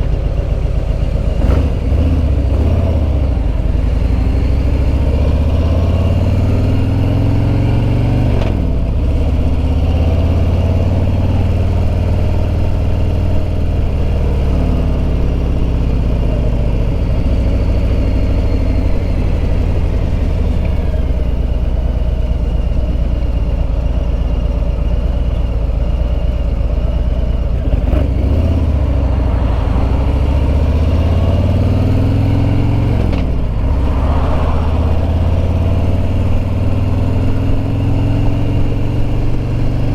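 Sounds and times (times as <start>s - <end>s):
motorcycle engine accelerating: 0.0s - 39.9s
wind noise: 28.2s - 39.4s.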